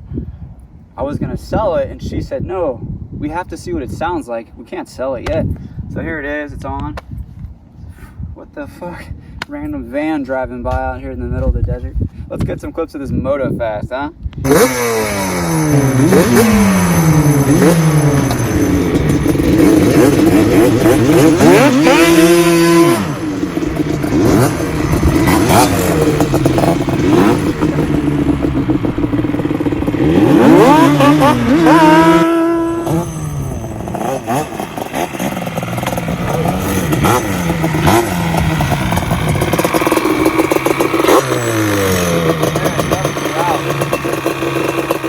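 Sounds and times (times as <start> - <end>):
two-stroke engine revving: 14.4 - 45.0.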